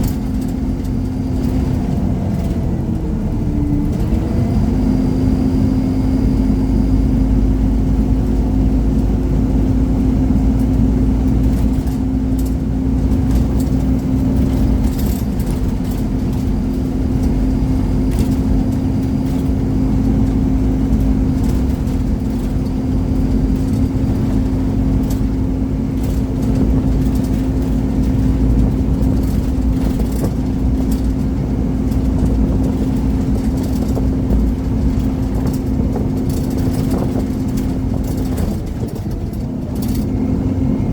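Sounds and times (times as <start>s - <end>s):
bus engine and road noise: 0.0s - 40.9s
short rattles: 10.4s - 40.3s.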